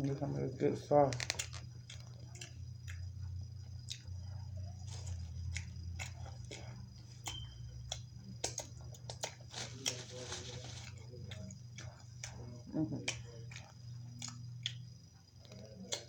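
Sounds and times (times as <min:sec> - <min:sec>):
steady low hum: 0:00.0 - 0:16.0
chewing and biting: 0:01.1 - 0:16.0
wet mouth clicks and smacks: 0:05.2 - 0:09.4, 0:13.0 - 0:14.8.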